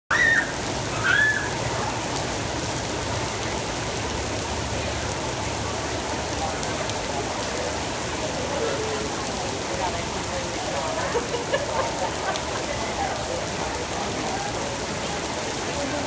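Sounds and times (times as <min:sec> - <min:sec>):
child squealing: 0:00.1 - 0:01.6
heavy rain on pavement: 0:00.1 - 0:16.0.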